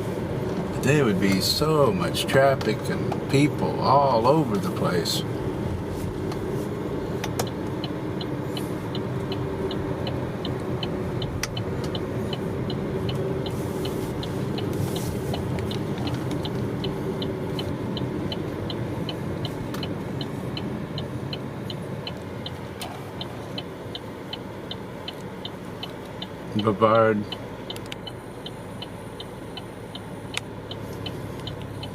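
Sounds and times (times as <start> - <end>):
car engine and tyre rumble: 0.0 - 31.9
regular high ticking: 6.9 - 31.9.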